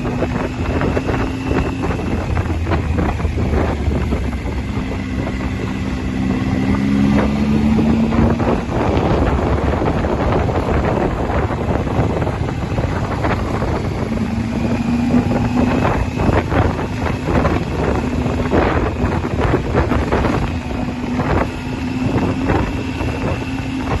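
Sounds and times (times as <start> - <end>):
motorcycle engine running: 0.0 - 24.0
wind buffeting microphone: 0.0 - 24.0.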